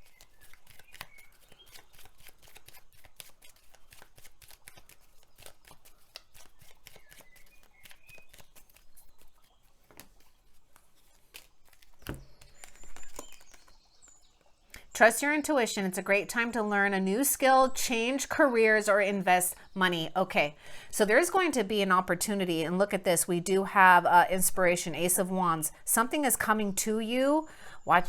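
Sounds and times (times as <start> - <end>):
cards being shuffled: 0.0 - 13.8
faint bird chirps: 6.6 - 10.4, 12.0 - 16.3.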